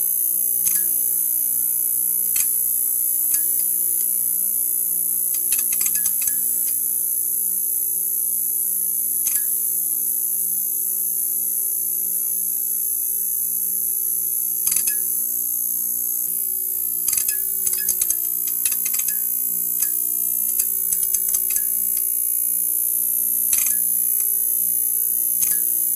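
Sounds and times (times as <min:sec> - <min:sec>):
neon sign buzzing: 0:00.0 - 0:10.4, 0:12.0 - 0:25.9
crackling clicks: 0:19.8 - 0:22.1, 0:23.5 - 0:24.4.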